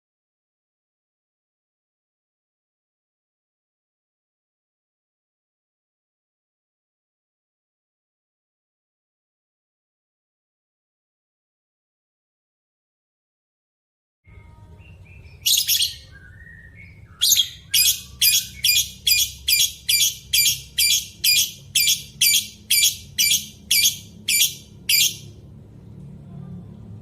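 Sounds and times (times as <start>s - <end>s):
faint bird chirps: 14.3s - 25.4s
bird calling loudly: 17.1s - 25.3s.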